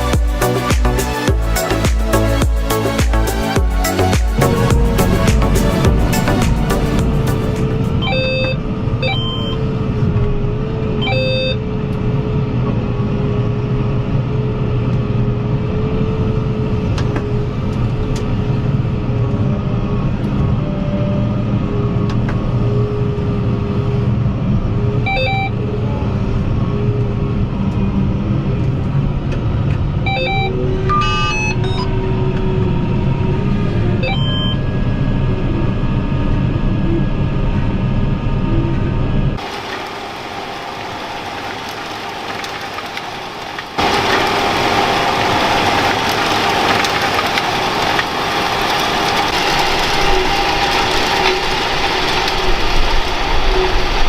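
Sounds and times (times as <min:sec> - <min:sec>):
tractor engine running: 0:00.0 - 0:11.0, 0:39.3 - 0:54.0.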